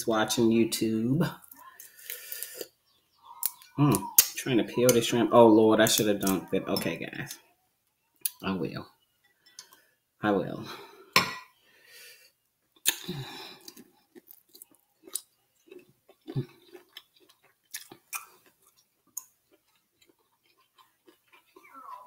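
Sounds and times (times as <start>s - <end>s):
person chewing: 1.4s - 5.1s, 5.8s - 7.4s, 12.7s - 22.0s
wet mouth noises: 12.8s - 22.0s.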